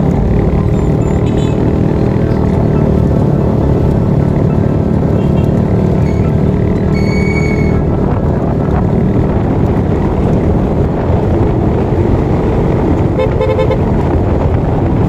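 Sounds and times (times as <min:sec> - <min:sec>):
motorcycle engine running: 0:00.0 - 0:15.0
road noise: 0:00.0 - 0:15.0
vehicle horn beeping: 0:01.0 - 0:01.6, 0:13.2 - 0:13.9.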